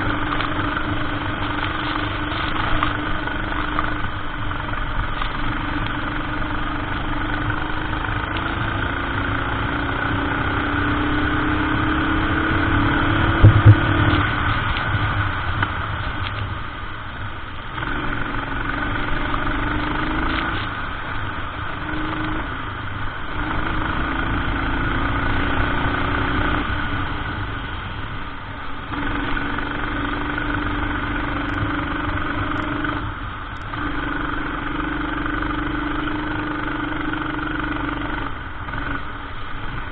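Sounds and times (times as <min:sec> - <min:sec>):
kart engine revving: 0:05.2 - 0:14.7
sharp knocks: 0:13.4 - 0:14.2.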